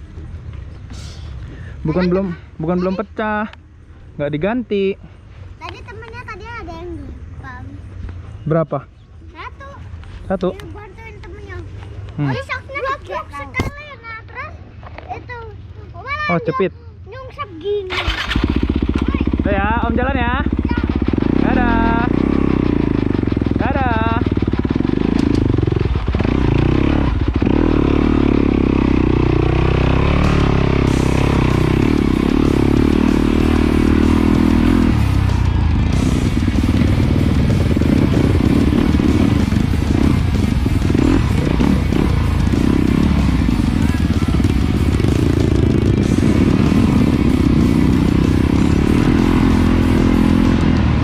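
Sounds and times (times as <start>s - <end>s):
dirt bike engine running: 17.9s - 51.0s.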